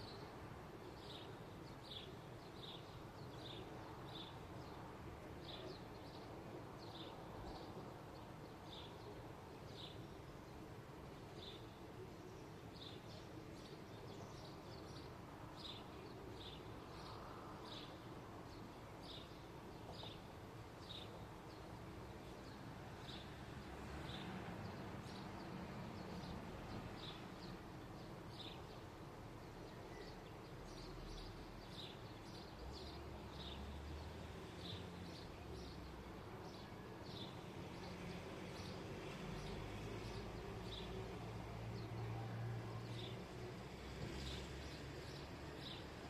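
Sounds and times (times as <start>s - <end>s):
small birds chirping: 0.0s - 46.0s.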